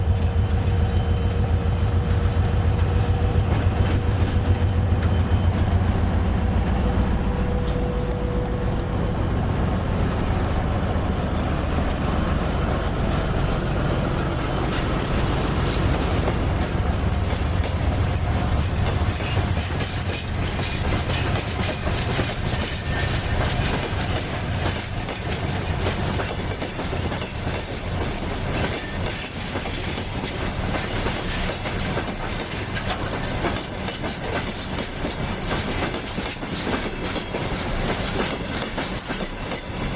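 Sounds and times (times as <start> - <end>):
heavy low train drone: 0.0 - 39.9
wheel clatter over rail joints: 8.4 - 39.9.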